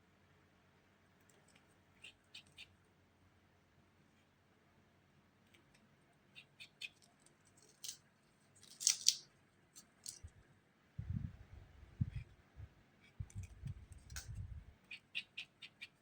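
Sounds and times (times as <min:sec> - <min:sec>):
dull low thuds: 0:11.0 - 0:14.7.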